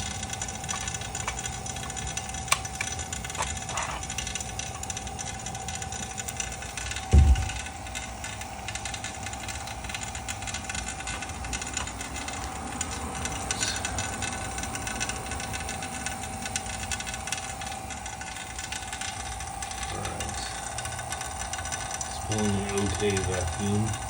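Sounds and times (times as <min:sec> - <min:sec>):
vacuum pump rattling: 0:00.0 - 0:24.0.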